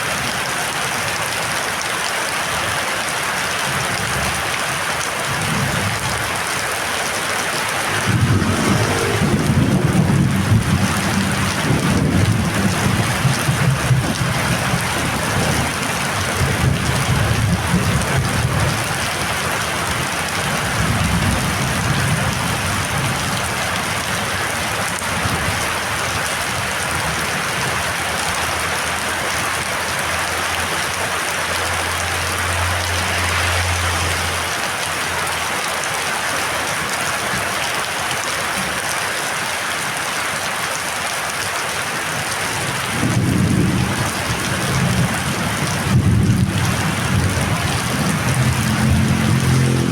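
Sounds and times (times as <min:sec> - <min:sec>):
heavy rain pouring: 0:00.0 - 0:49.9
thunder rumbling: 0:07.4 - 0:18.8, 0:42.7 - 0:49.9.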